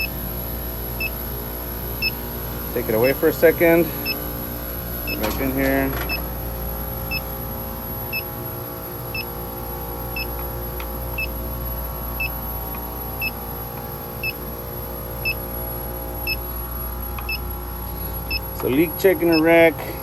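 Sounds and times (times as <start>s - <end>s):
refrigeration machinery humming: 0.0s - 20.0s
leak detector short high beeps: 19.3s - 19.6s.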